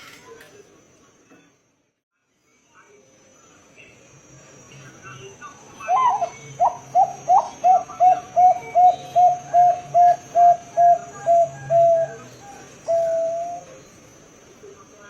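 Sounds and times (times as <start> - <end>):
dove cooing: 5.8 - 13.9.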